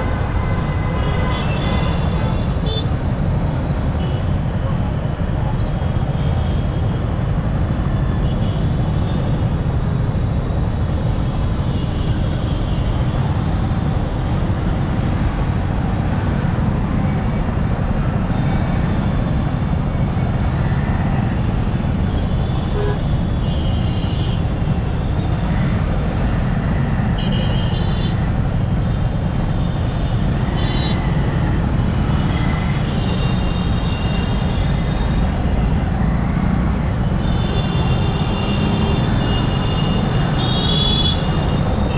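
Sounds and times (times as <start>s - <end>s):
wind and road rush: 0.0s - 41.9s
vehicle horns honking: 37.2s - 41.9s.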